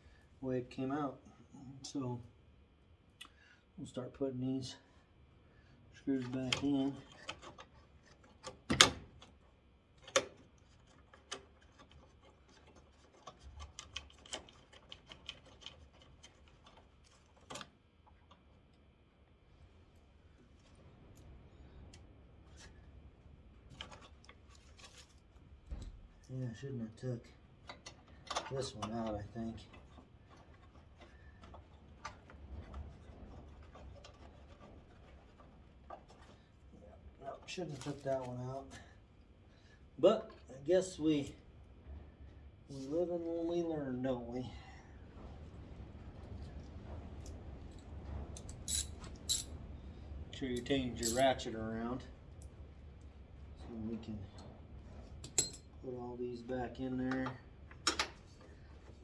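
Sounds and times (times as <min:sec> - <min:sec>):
low steady rumble: 0:28.5 - 0:59.0.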